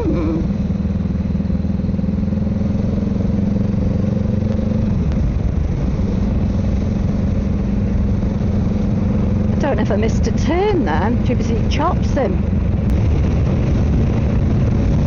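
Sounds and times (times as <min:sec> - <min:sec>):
motorcycle engine running: 0:00.0 - 0:15.0
wind rush: 0:10.4 - 0:15.0.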